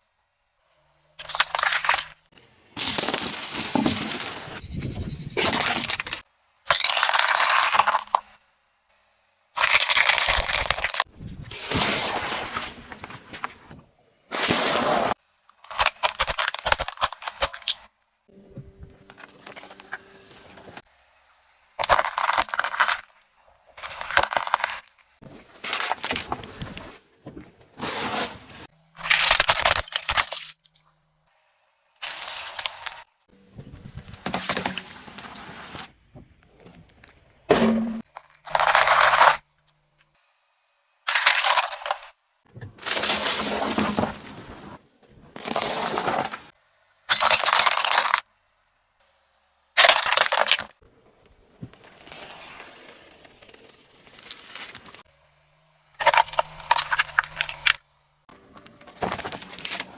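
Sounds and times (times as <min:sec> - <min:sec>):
objects crunching under car tyre: 0:01.2 - 0:04.6, 0:21.8 - 0:30.7, 0:36.5 - 0:39.4, 0:41.1 - 0:48.2, 0:49.8 - 0:55.2, 0:55.9 - 0:59.9.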